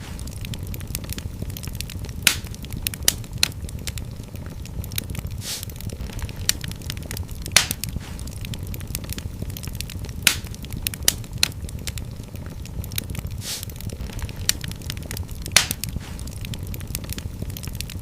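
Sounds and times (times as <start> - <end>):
low rumble of fire: 0.0 - 18.0
wood fire crackling: 0.0 - 18.0
brief hiss: 5.4 - 5.7, 13.4 - 13.7.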